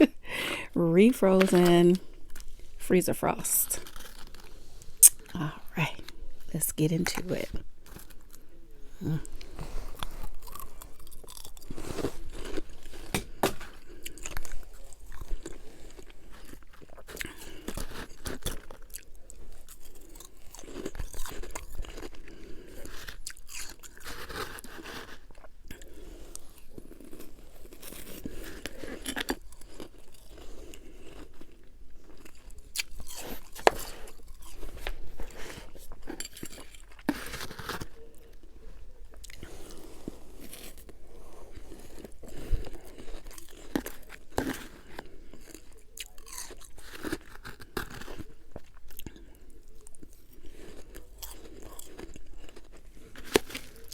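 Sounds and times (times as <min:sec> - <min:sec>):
soft chewing: 0:01.3 - 0:02.8, 0:03.5 - 0:53.9
crunching ice between teeth: 0:03.8 - 0:05.4, 0:09.1 - 0:38.3, 0:39.2 - 0:53.9.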